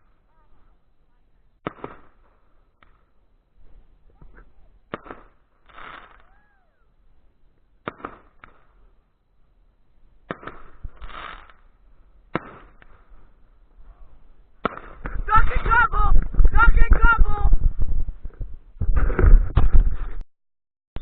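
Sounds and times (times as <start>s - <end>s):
fireworks bangs: 1.6s - 3.2s, 4.1s - 6.5s, 7.8s - 9.0s, 10.2s - 13.4s, 14.6s - 17.8s
smaller fireworks pops: 1.6s - 3.2s, 4.0s - 6.4s, 7.5s - 9.0s, 10.2s - 13.4s, 14.6s - 17.0s.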